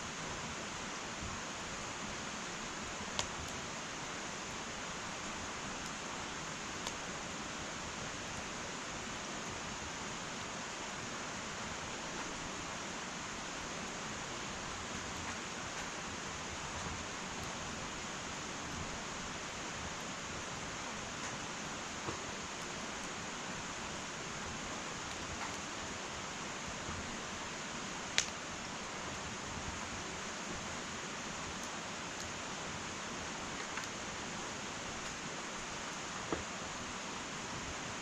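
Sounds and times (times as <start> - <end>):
faint fire crackles: 0.0 - 38.0
wood fire hissing: 0.0 - 38.0.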